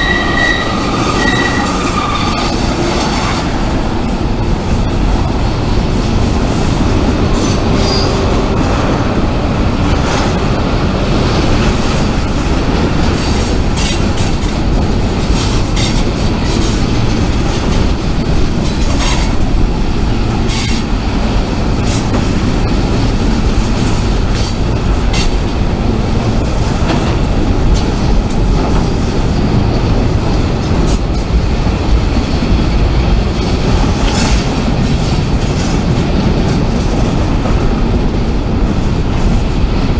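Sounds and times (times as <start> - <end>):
high wheel squeal: 0.0 - 3.9
freight train rumbling past: 0.0 - 39.9.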